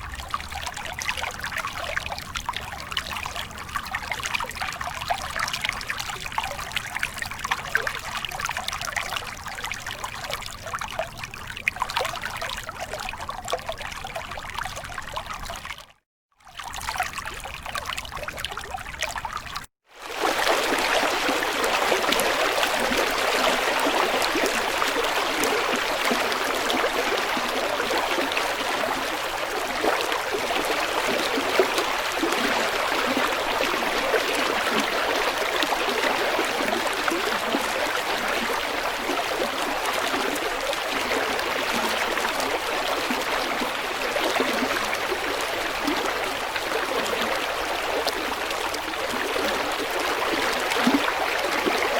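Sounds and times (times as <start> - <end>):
shallow stream flowing: 0.0 - 51.9.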